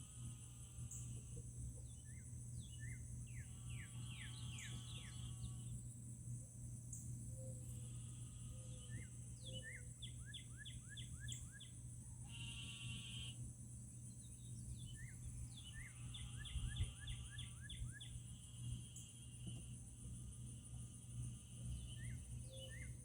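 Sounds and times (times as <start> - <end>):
songbird whistling: 8.9 - 11.7.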